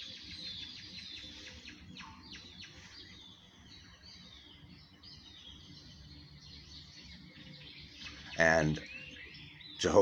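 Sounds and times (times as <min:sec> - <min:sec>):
faint birdsong chirps and trills: 0:00.0 - 0:10.0.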